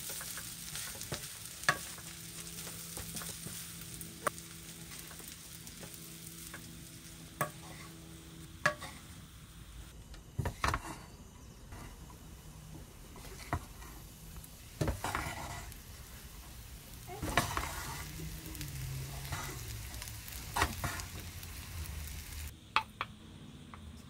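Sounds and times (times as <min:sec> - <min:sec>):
spatula stirring and scraping: 0:00.0 - 0:06.7, 0:07.4 - 0:08.0, 0:08.6 - 0:09.1, 0:13.2 - 0:21.7
rice sizzling in a wok: 0:00.0 - 0:23.0.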